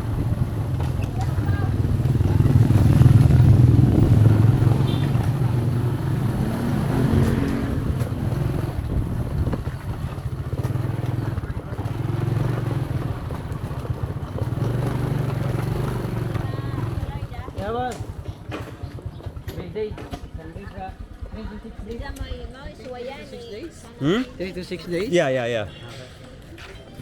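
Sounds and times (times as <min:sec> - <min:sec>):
motorcycle engine running: 0:00.0 - 0:23.8
faint voices: 0:16.3 - 0:27.0.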